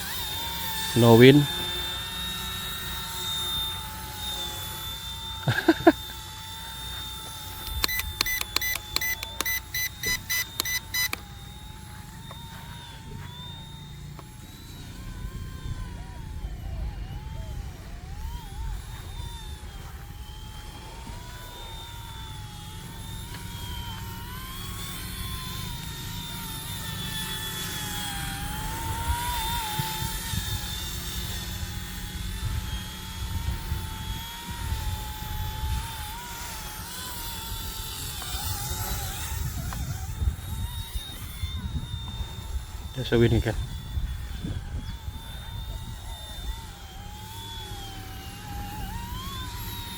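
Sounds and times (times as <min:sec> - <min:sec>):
rc helicopter rotors whining: 0:00.0 - 0:49.9
electronic beeps: 0:07.7 - 0:14.9
wind on microphone: 0:28.5 - 0:36.8, 0:37.4 - 0:47.0.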